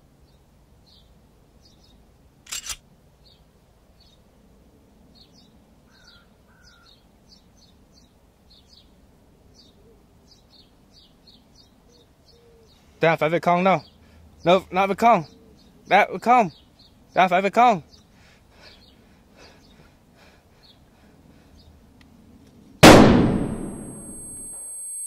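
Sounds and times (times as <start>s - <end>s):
small birds chirping faintly: 0.1s - 2.4s, 3.0s - 22.6s
loud sharp sound: 22.8s - 25.0s.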